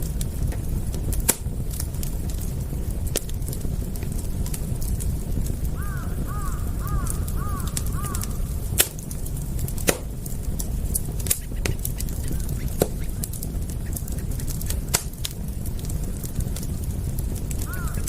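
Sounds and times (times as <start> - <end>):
wood fire crackling: 0.0 - 18.0
bird calling: 5.8 - 8.5, 11.4 - 14.4, 17.6 - 18.0.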